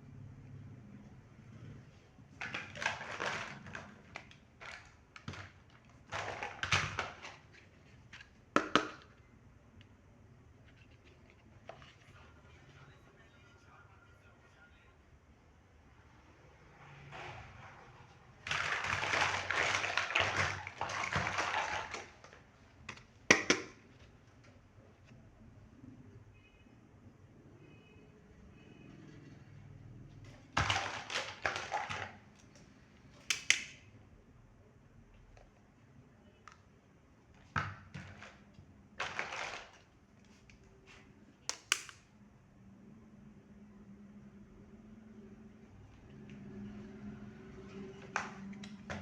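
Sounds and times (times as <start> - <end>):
plastic packaging crinkling: 2.4 - 7.7, 18.5 - 22.5, 39.0 - 39.9.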